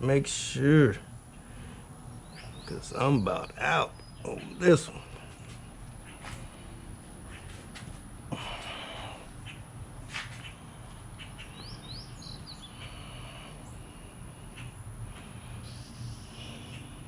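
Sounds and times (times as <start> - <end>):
low steady hum: 0.0 - 17.0
bird chirping: 1.3 - 6.7, 10.4 - 13.9, 15.6 - 17.0.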